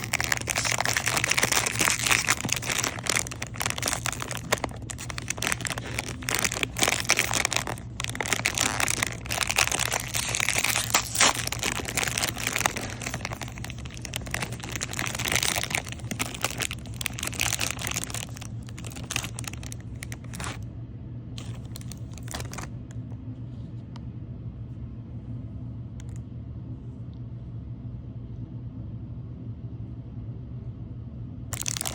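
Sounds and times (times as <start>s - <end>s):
wrapper crinkling and tearing: 0.0s - 20.6s, 21.4s - 22.7s, 31.5s - 31.9s
steady low hum: 0.0s - 31.9s.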